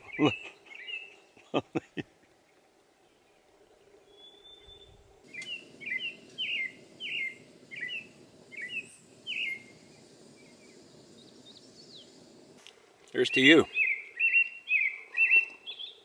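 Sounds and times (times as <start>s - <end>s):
songbird singing: 0.0s - 16.0s
thin high whistle: 5.3s - 12.1s.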